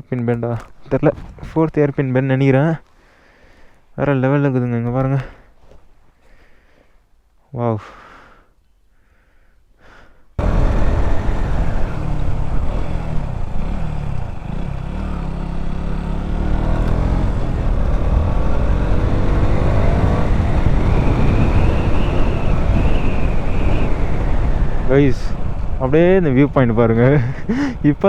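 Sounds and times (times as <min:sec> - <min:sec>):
motorcycle engine riding: 0:10.4 - 0:28.0
wind buffeting microphone: 0:16.6 - 0:28.0.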